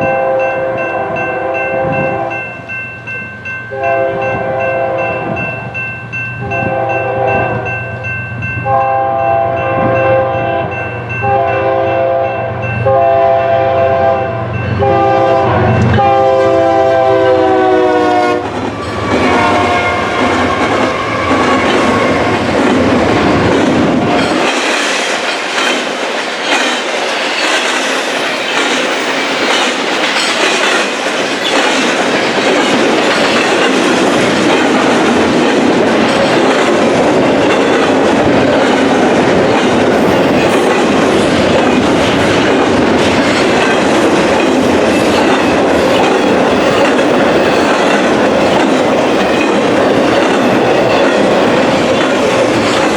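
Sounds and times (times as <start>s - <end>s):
train air horn chord: 0.0s - 2.4s, 3.7s - 5.4s, 6.4s - 7.7s, 8.6s - 22.2s
train wheels rushing on rail: 0.0s - 52.9s
clickety-clack over rail joints: 18.2s - 52.9s.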